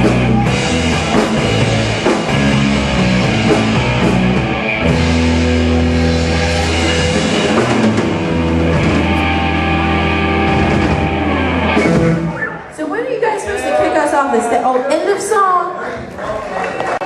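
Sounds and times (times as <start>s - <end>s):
drum kit: 0.0s - 12.6s
bass guitar: 0.0s - 12.7s
electric guitar: 0.0s - 12.8s.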